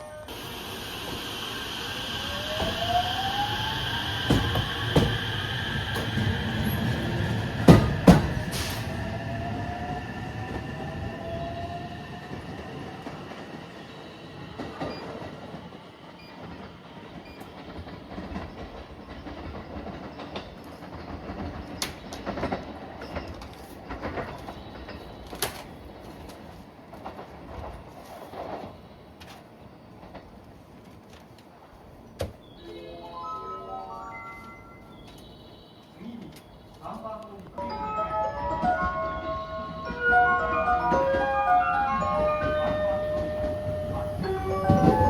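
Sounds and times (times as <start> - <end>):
electric train motor whine: 0.0 - 12.8
train wheels knocking over rail joints: 2.3 - 8.8.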